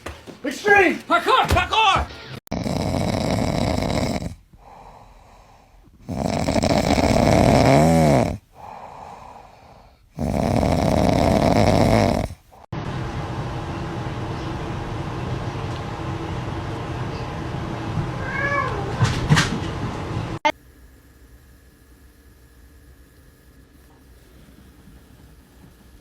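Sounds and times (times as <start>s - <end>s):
pet snoring loudly: 2.5s - 12.7s.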